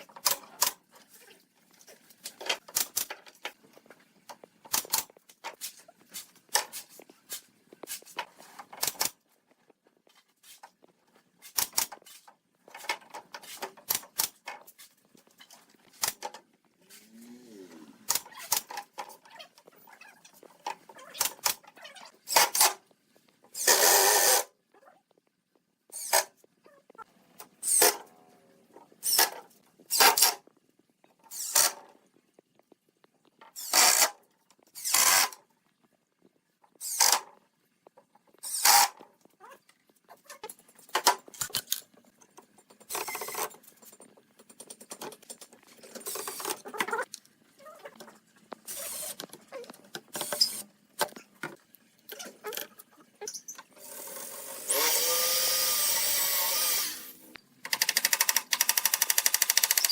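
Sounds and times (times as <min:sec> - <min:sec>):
power tool running: 0:53.8 - 0:57.3.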